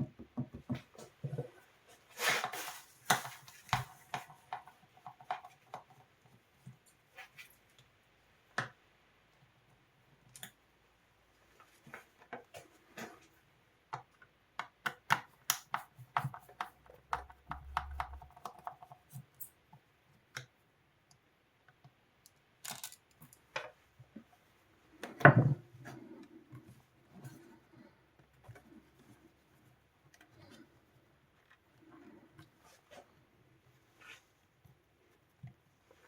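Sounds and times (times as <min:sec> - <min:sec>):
clicks and taps of handling tools: 0:13.9 - 0:24.3.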